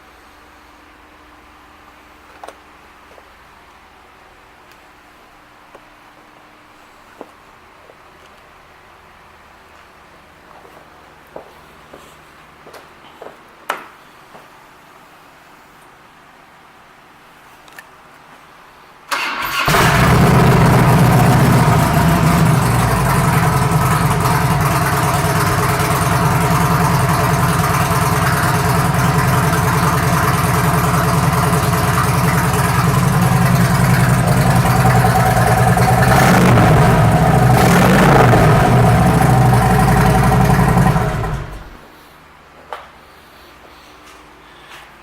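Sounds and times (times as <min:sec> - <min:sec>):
motorcycle engine starting and idling: 0:19.1 - 0:41.9
motorcycle engine revving: 0:19.6 - 0:41.8.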